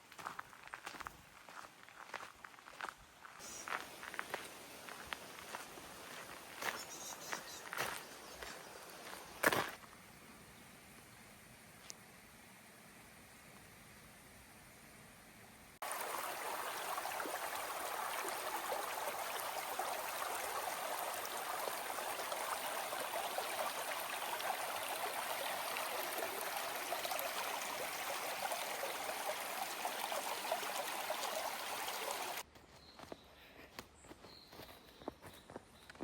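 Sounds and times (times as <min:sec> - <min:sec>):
stream water rushing and gurgling: 0:03.6 - 0:09.9, 0:15.8 - 0:32.4.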